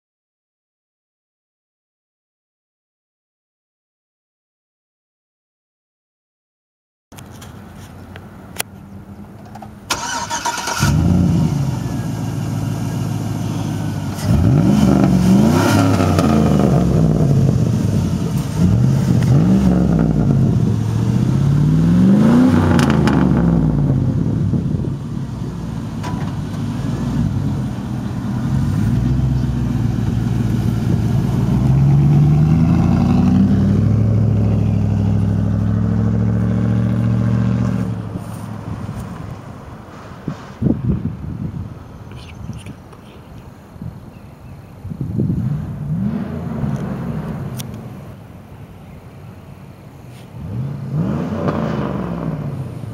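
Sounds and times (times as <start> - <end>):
loud engine revving and idling: 10.0 - 38.0, 45.3 - 47.8, 50.4 - 52.9.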